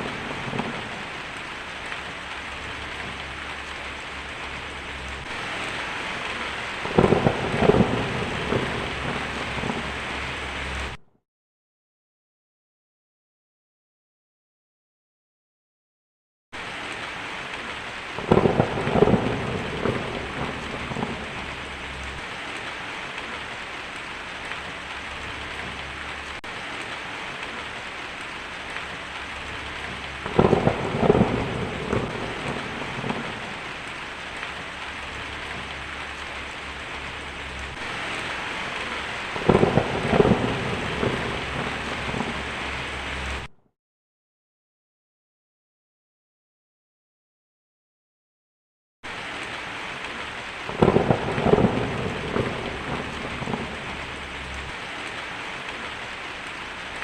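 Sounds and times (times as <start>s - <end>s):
steady rain: 0.0s - 11.0s, 16.6s - 43.5s, 49.0s - 57.0s
thunder rolling: 0.0s - 11.0s, 18.2s - 22.2s, 28.4s - 43.5s, 50.7s - 54.8s.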